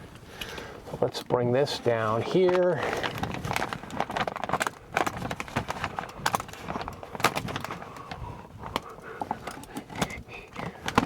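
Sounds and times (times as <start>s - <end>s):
things knocked and handled: 9.2s - 11.0s.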